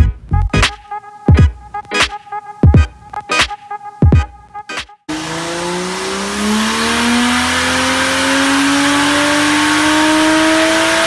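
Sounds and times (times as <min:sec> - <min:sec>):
car engine revving under load: 0:05.1 - 0:11.0.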